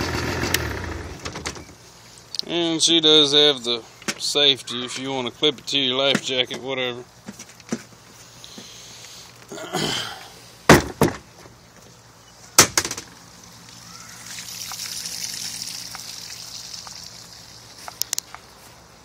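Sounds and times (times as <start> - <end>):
outboard motor idling: 0.0 - 1.4
water trickling: 13.3 - 18.2.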